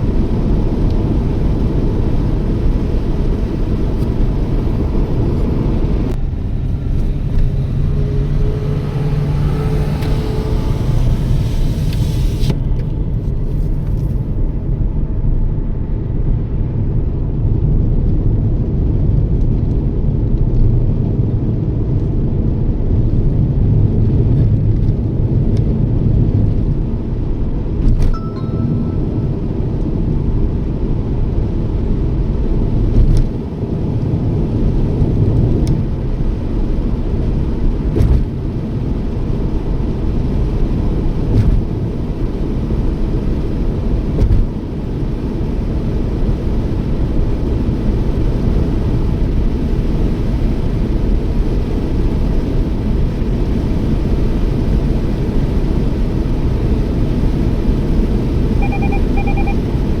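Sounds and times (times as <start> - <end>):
road and engine rumble: 0.0 - 60.0
short double beep: 28.1 - 29.8, 58.6 - 59.7.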